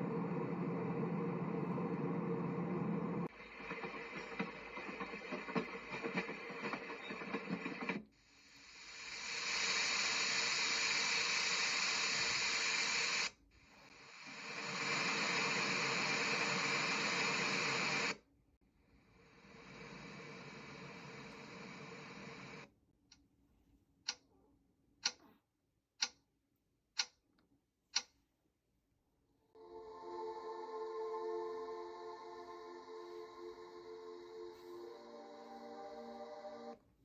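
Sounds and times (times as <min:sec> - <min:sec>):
white noise machine hiss: 0:00.0 - 0:18.2, 0:19.0 - 0:22.7.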